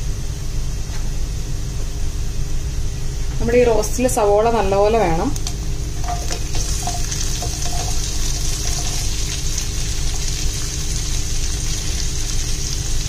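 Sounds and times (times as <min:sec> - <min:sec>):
steady low hum: 0:00.0 - 0:13.0
onion pieces clicking into pan: 0:05.4 - 0:10.4
onions sizzling in oil: 0:05.4 - 0:13.0.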